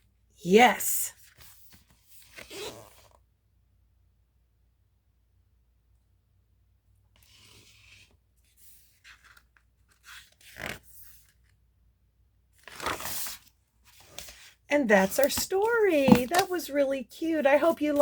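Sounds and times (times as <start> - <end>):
book pages rustling: 7.3 - 11.6, 12.6 - 16.8.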